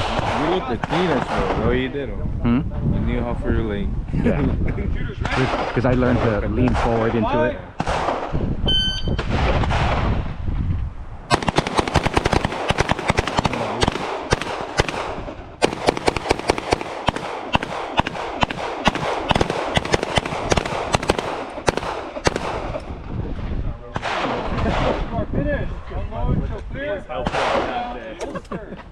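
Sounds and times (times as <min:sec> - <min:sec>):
short high beep: 0:08.7 - 0:09.2
handguns firing rapidly: 0:11.3 - 0:22.9.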